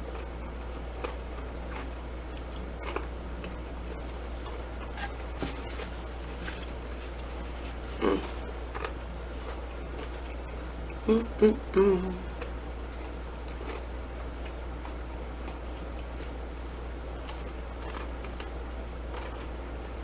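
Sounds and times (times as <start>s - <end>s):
quiet chewing: 0.0s - 11.0s, 12.3s - 19.6s
steady low hum: 0.0s - 20.0s
woman humming: 7.9s - 8.4s, 11.0s - 12.3s.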